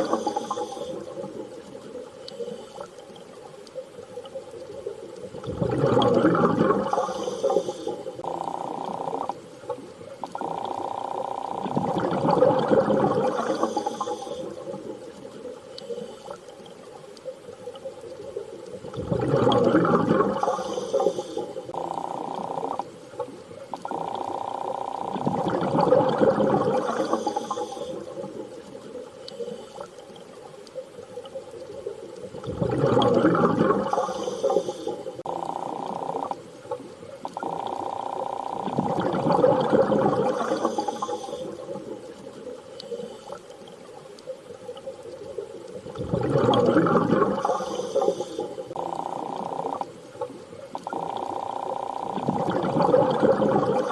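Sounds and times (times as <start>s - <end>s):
underwater rushing bubbling surge: 5.3s - 9.4s, 10.2s - 15.5s, 18.1s - 24.4s, 25.0s - 29.0s, 32.3s - 42.6s, 44.7s - 53.9s.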